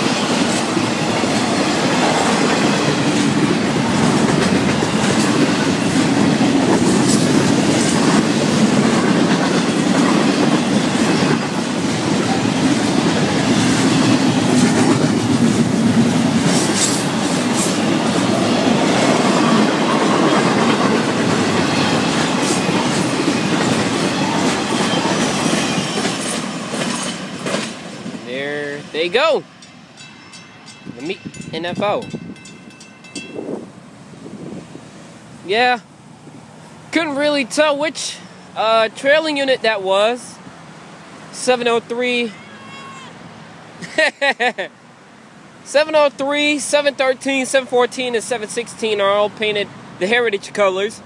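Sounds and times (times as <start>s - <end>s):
wheels clacking over rail joints: 0.0s - 33.4s
train wheels rumbling on rail: 0.0s - 41.8s.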